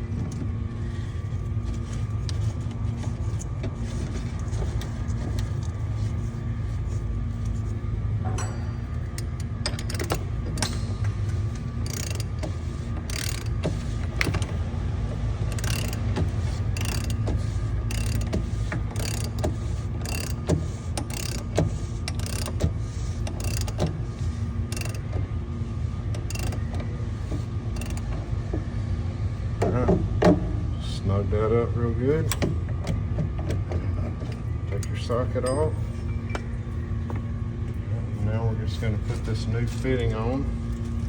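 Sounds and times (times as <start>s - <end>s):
steady low hum: 0.0s - 41.0s
ratchet wrench clicking: 9.2s - 10.9s, 11.5s - 14.5s, 15.5s - 24.0s, 24.7s - 25.1s, 26.1s - 26.8s, 27.8s - 28.2s.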